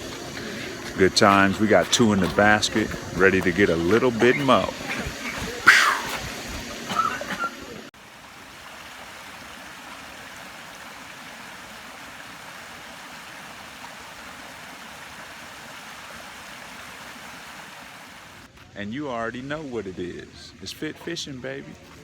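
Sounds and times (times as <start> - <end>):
running water rushing: 0.0 - 18.5
person speaking: 0.1 - 6.9.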